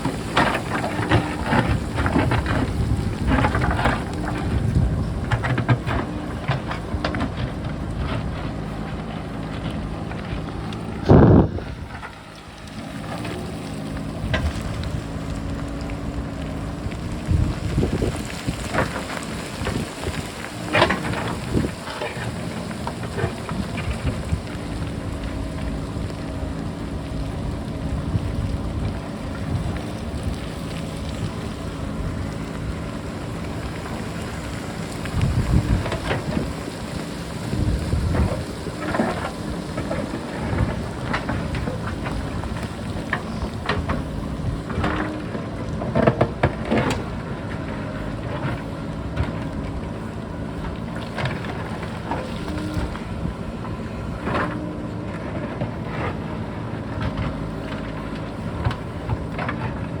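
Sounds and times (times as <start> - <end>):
wind buffeting microphone: 0.0 - 12.3, 14.1 - 45.5
diesel engine running: 0.0 - 60.0
rocks tumbling down slope: 0.0 - 60.0.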